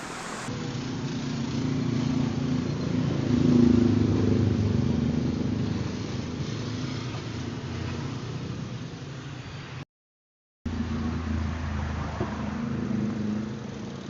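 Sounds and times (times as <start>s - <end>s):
vehicle engine passing by: 0.0s - 9.4s, 10.7s - 14.0s.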